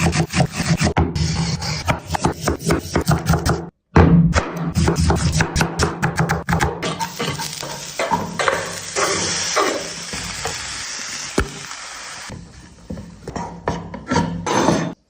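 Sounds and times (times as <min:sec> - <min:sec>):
food sizzling in a pan: 0:06.9 - 0:13.2.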